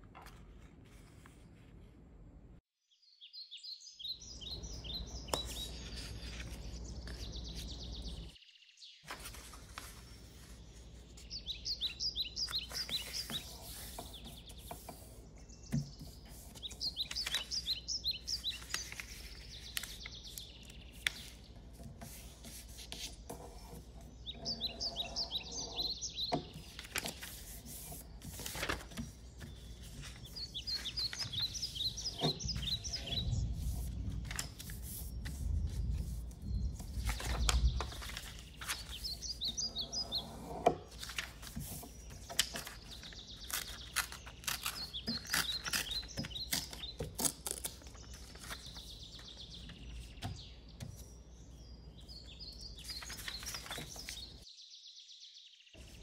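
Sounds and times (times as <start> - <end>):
paper rustling and folding: 0.0 - 2.1, 5.0 - 8.3, 9.0 - 51.2, 52.7 - 54.4
bird chirping in high trills: 24.2 - 26.4.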